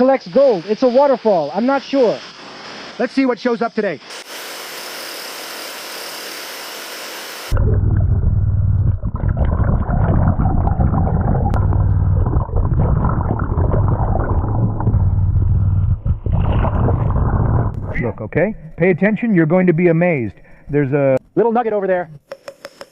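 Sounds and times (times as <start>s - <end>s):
hiss of falling water: 0.0s - 7.6s
underwater rumble and gurgle: 7.5s - 18.8s.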